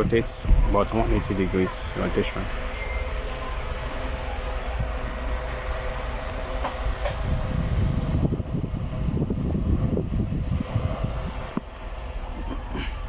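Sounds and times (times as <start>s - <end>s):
fan motor hum: 0.0s - 12.9s
fluttering low rumble: 0.4s - 1.5s.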